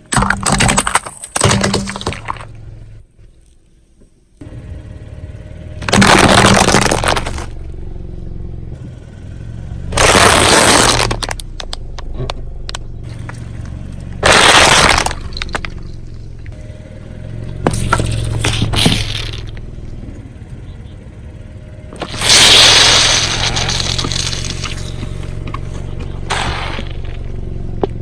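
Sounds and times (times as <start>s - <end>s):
tyre crushing objects: 0.0s - 2.6s, 5.8s - 7.6s, 10.0s - 11.7s, 14.2s - 15.9s, 17.7s - 19.6s, 22.0s - 28.0s
car engine hum: 0.0s - 28.0s
small cracks: 5.8s - 7.6s, 10.0s - 16.5s, 22.0s - 28.0s.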